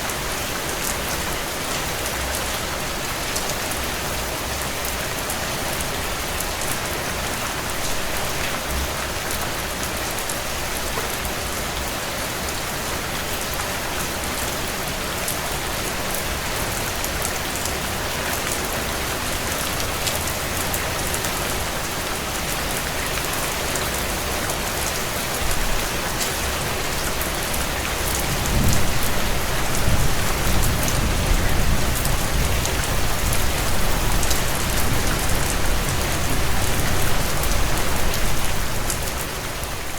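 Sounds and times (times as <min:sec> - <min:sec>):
heavy rain on windows: 0:00.0 - 0:39.9.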